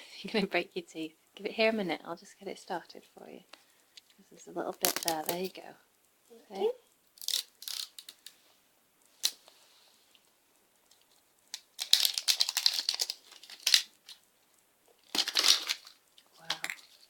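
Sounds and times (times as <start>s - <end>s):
wrapper crinkling and tearing: 4.7s - 5.5s, 7.1s - 8.4s, 10.9s - 14.3s, 15.0s - 17.0s.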